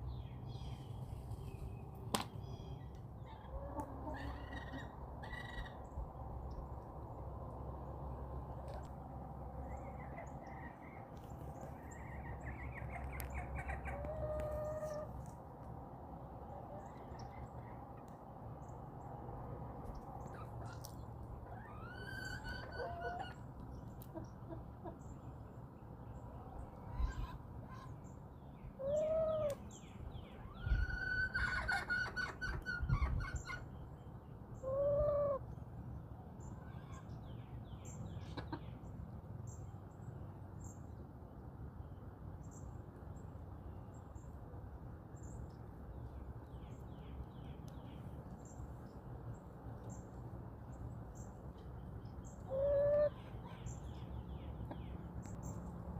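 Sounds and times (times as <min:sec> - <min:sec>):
chickens clucking: 0:03.3 - 0:05.7, 0:12.4 - 0:15.2, 0:20.4 - 0:23.4, 0:24.0 - 0:25.0, 0:30.8 - 0:33.6, 0:38.2 - 0:38.8, 0:52.5 - 0:53.7
small birds chirping: 0:45.1 - 0:55.8.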